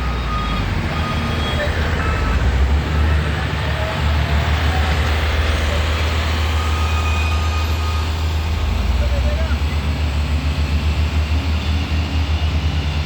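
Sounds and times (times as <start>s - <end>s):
diesel engine running under load: 0.0s - 13.0s.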